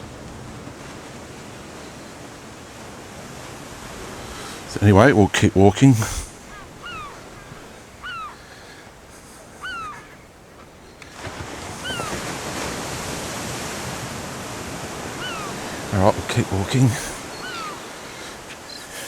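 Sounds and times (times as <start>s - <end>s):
ocean surf washing ashore: 0.0s - 19.0s
bird call: 3.9s - 12.9s, 14.6s - 19.0s.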